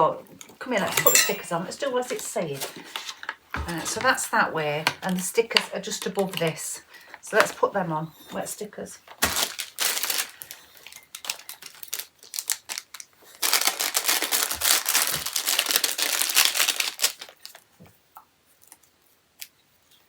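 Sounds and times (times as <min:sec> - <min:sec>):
plastic packaging crinkling: 0:00.9 - 0:04.3, 0:05.0 - 0:07.6, 0:09.0 - 0:17.8.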